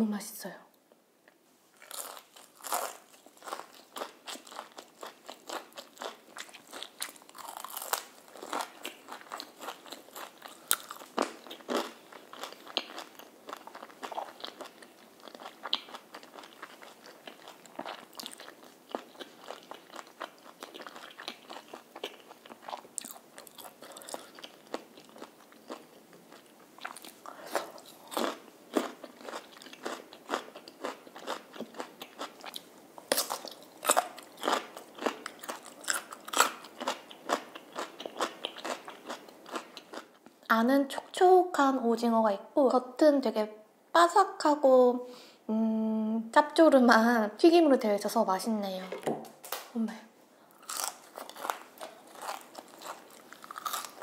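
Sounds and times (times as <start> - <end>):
crunching fried chicken: 1.8 - 40.1, 50.6 - 54.0.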